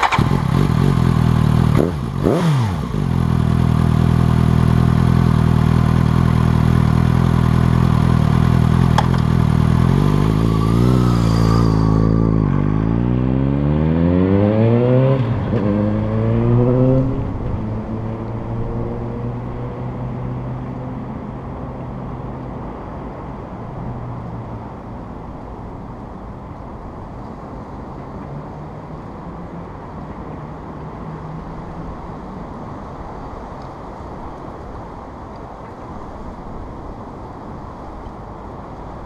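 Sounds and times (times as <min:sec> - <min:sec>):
motorcycle engine passing by: 0:00.0 - 0:05.5, 0:07.8 - 0:20.4
road and wind noise: 0:00.0 - 0:39.0.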